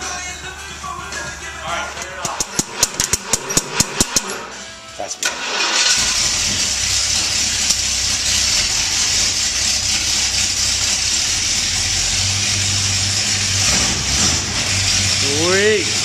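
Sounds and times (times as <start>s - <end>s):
car engine running: 0.8s - 16.0s.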